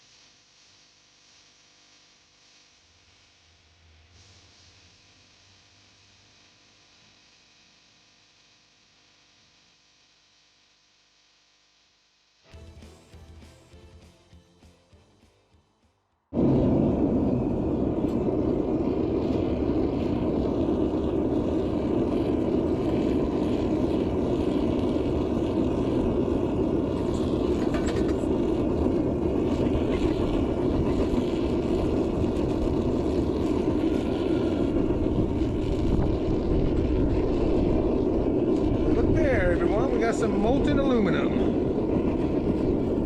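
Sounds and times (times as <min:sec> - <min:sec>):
gas furnace burner rushing: 0:16.4 - 0:43.0.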